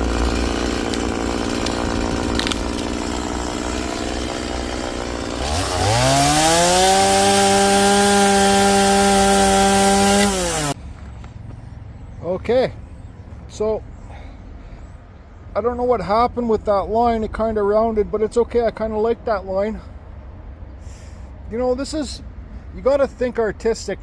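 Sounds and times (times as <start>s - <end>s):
chainsaw revving and cutting log: 0.0s - 10.8s.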